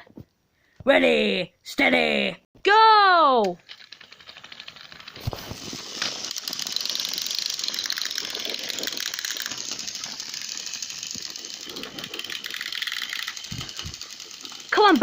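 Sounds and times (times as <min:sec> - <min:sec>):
toy train motors whirring: 0:03.4 - 0:15.0.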